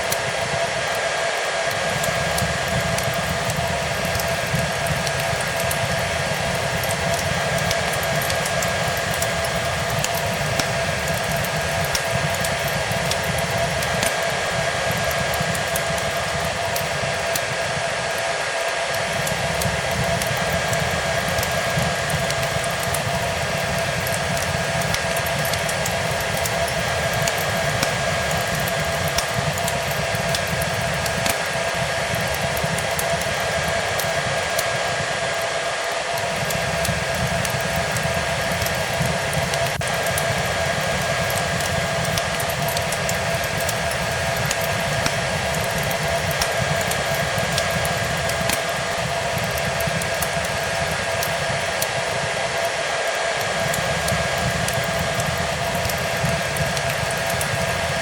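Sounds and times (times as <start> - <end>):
faint wood fire crackles: 0.0 - 58.0
hair dryer running: 0.0 - 58.0.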